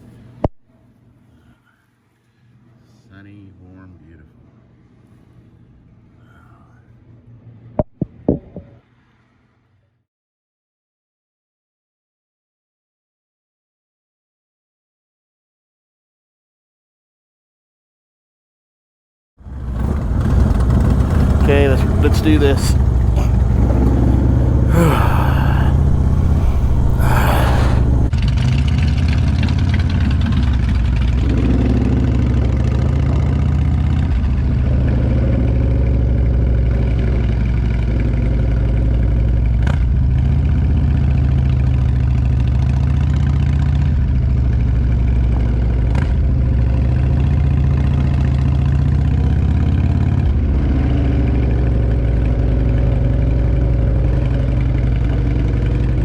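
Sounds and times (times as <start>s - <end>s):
motorcycle engine running: 19.4s - 56.0s.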